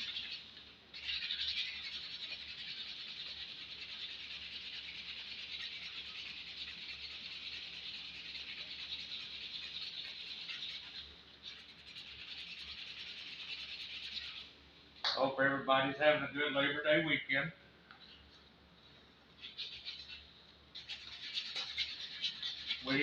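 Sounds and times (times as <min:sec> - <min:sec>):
sandpaper rasping on wood: 0:00.0 - 0:14.5, 0:19.5 - 0:20.2, 0:20.8 - 0:23.0.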